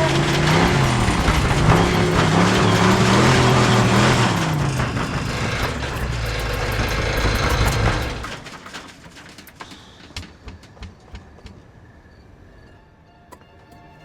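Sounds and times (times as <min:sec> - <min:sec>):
vehicle engine revving: 0:00.0 - 0:08.5.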